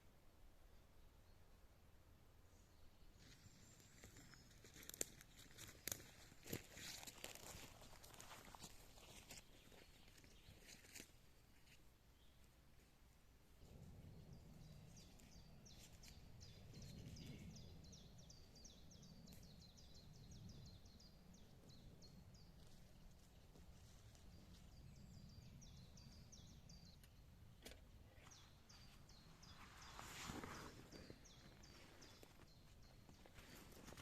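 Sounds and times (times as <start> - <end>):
birds chirping: 13.6 - 34.0.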